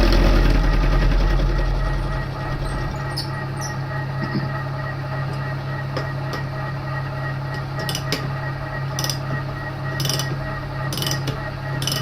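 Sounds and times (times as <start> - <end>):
milling machine running: 0.0 - 6.6.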